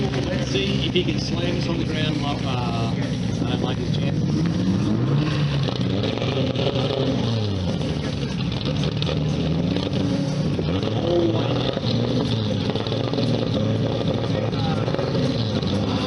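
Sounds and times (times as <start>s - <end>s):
car engine revving: 0.0s - 16.0s
crowd noise: 0.0s - 16.0s.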